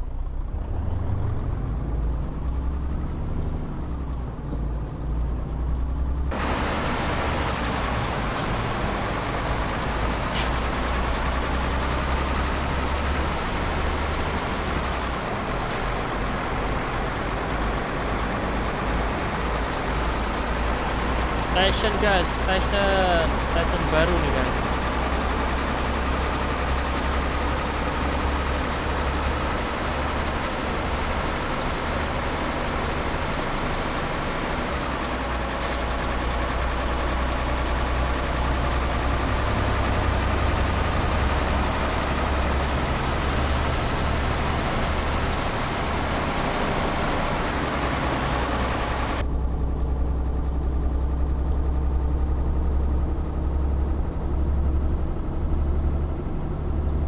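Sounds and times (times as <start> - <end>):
truck engine humming: 0.0 - 57.0
road hiss: 6.3 - 25.6, 39.5 - 49.2.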